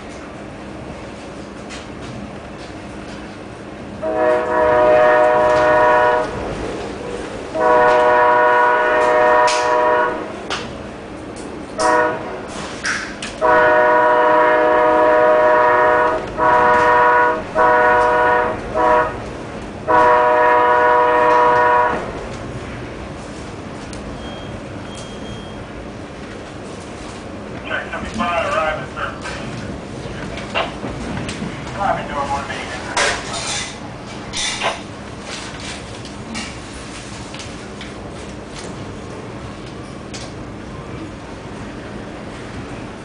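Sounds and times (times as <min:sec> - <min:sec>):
locomotive air horn blasts: 0:04.0 - 0:06.4, 0:07.6 - 0:10.4, 0:11.8 - 0:12.5, 0:13.4 - 0:19.2, 0:19.8 - 0:22.2.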